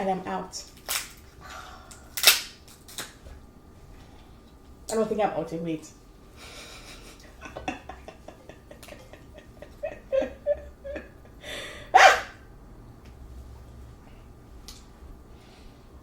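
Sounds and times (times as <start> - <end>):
woman breathy laugh: 6.4 - 12.0.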